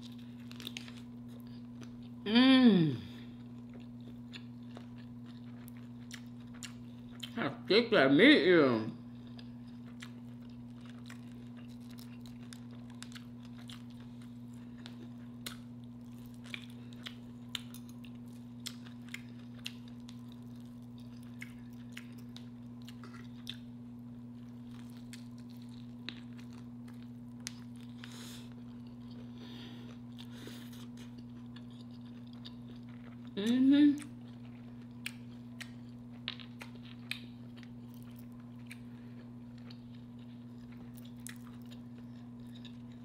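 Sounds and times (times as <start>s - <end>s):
chewing crispy food: 0.0s - 2.2s, 3.1s - 7.7s, 8.9s - 43.0s
steady low hum: 0.0s - 43.0s.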